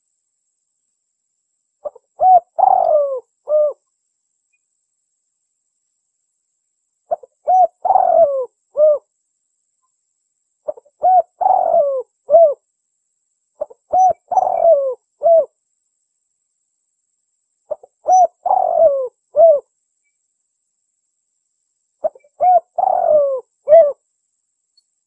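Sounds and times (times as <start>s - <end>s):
dove cooing: 1.8s - 3.8s, 7.1s - 9.1s, 10.7s - 12.6s, 13.6s - 15.5s, 17.7s - 19.6s, 22.0s - 24.0s.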